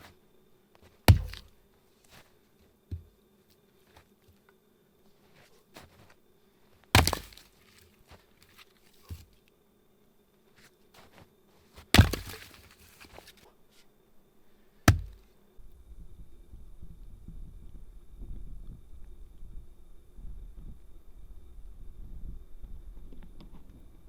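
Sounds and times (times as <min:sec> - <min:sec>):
heavy blows chopping wood: 0:01.1 - 0:01.5, 0:07.0 - 0:07.6, 0:12.0 - 0:13.2, 0:14.9 - 0:15.2.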